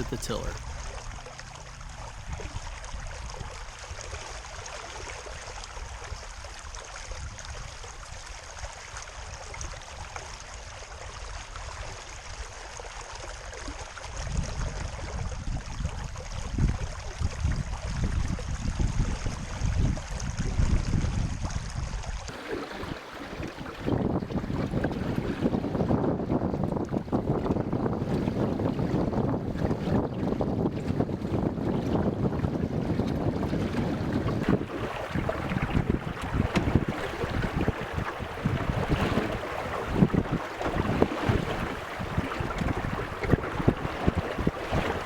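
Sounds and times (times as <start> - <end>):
water rushing along hull: 0.0 - 45.0
wind buffeting microphone: 14.1 - 45.0.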